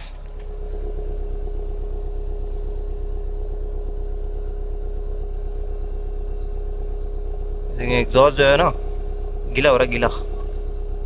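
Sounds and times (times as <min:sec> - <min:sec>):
car exhaust idling: 0:00.0 - 0:11.0
faint ticks: 0:10.1 - 0:11.0.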